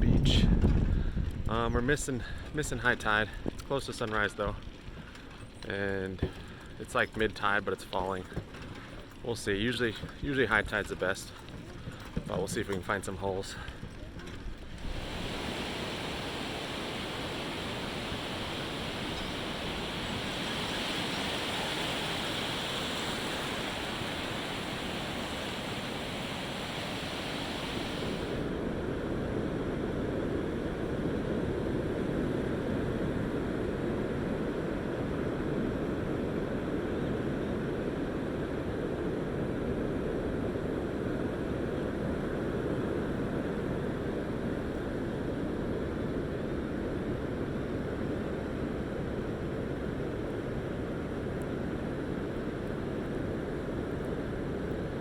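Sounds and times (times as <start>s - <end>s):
ocean surf washing onto beach: 14.8s - 37.4s.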